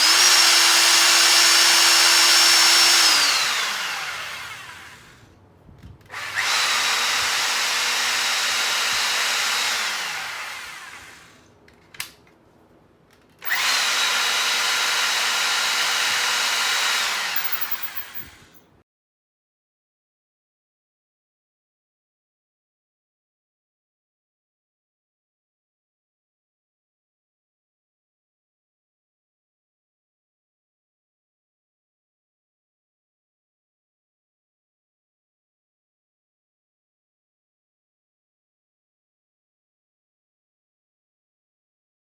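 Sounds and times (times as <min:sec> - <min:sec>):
hammer drill motor whining: 0:00.0 - 0:05.2, 0:06.1 - 0:11.4, 0:13.4 - 0:18.6
sharp click: 0:17.4 - 0:18.6.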